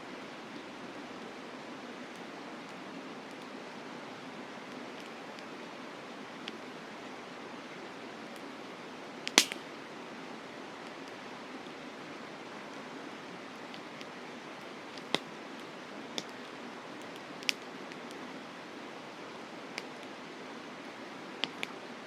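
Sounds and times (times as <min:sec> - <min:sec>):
campfire crackling: 0:00.2 - 0:22.0
burning wood popping: 0:09.2 - 0:09.7, 0:13.6 - 0:14.2, 0:14.9 - 0:18.2, 0:21.4 - 0:21.8.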